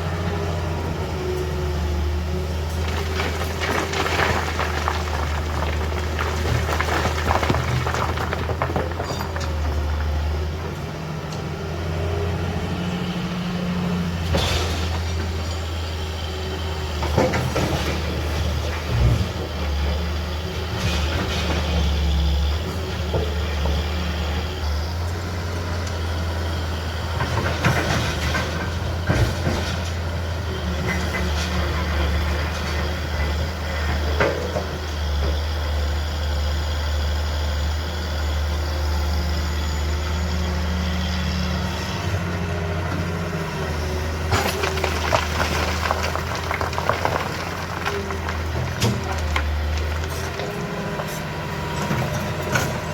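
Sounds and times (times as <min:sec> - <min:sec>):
heavy diesel machinery running: 0:00.0 - 0:52.9
machinery clanks and rattles: 0:27.0 - 0:35.4, 0:44.2 - 0:52.9.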